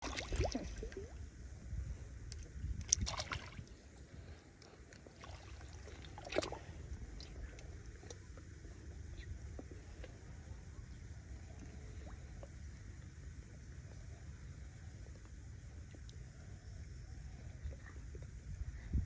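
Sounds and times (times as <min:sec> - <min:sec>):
water sloshing and splashing: 0:00.0 - 0:01.2, 0:02.4 - 0:04.4, 0:05.0 - 0:07.4
steady low rumble: 0:00.0 - 0:19.0.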